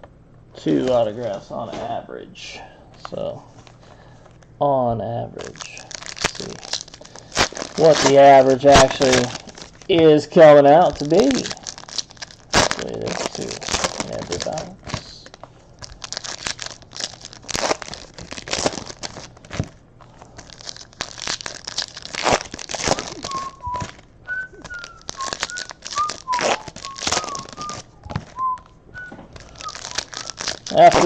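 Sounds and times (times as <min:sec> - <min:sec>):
wrappers crinkling and tearing: 0:05.3 - 0:31.0
person whistling a tune: 0:23.0 - 0:30.5.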